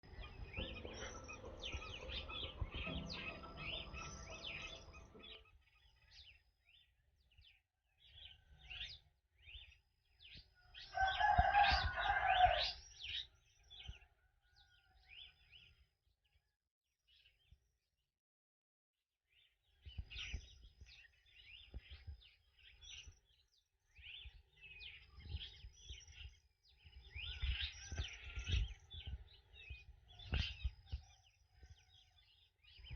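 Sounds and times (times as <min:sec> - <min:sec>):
small birds chirping: 0:00.0 - 0:17.7, 0:19.4 - 0:32.9
rooster crowing: 0:10.8 - 0:12.8.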